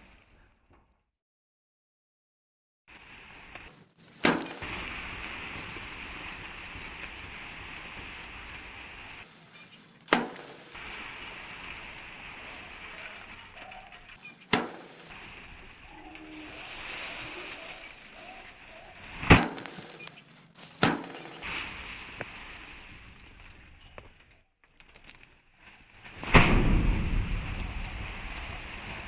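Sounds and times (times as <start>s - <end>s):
outdoor hiss: 2.9s - 23.2s
sharp knocks: 10.1s - 10.8s, 14.4s - 15.1s, 19.3s - 21.4s.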